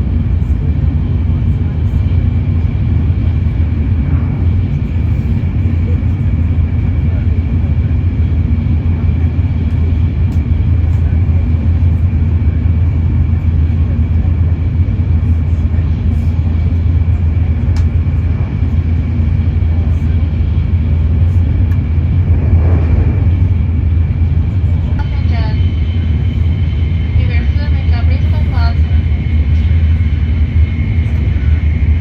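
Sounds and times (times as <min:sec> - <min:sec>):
train rumble from inside: 0:00.0 - 0:32.0.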